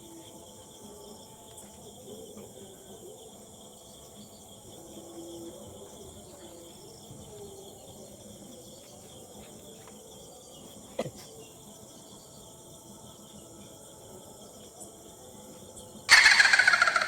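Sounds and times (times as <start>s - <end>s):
faint crickets chirring: 0.0s - 17.0s.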